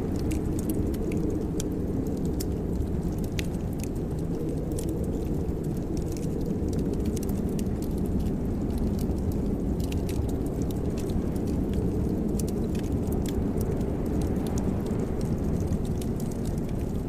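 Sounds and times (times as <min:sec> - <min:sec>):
fire crackling and popping: 0:00.0 - 0:17.0
low rumble of fire: 0:00.0 - 0:17.0.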